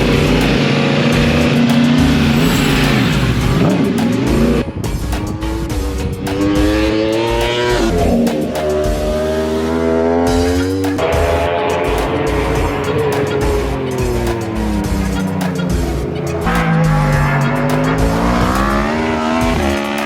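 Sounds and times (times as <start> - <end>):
gear upshifts: 0.0 - 20.0
motorcycle engine accelerating: 0.0 - 20.0.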